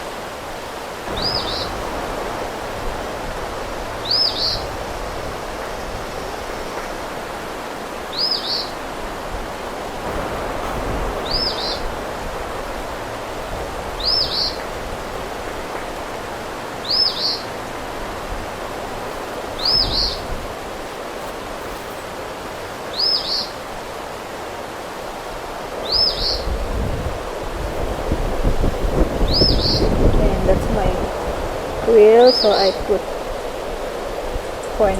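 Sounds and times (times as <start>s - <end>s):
wind and rain hiss: 0.0s - 34.9s
small bird calling: 8.1s - 8.8s, 14.0s - 14.6s, 16.8s - 17.5s, 19.6s - 20.4s, 22.9s - 23.6s, 25.8s - 26.6s, 29.2s - 30.1s, 31.8s - 33.2s.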